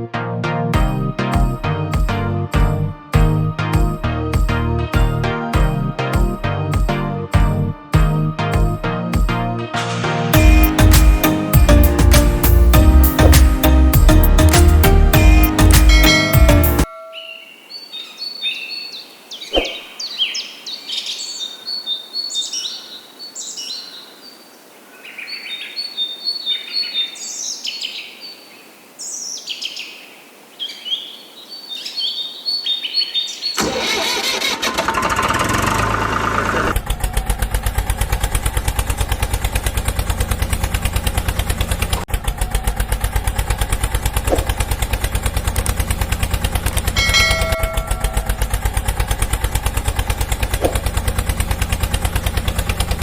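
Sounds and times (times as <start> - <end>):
birds chirping and whistling: 15.6 - 24.4, 25.0 - 28.4, 30.6 - 33.6.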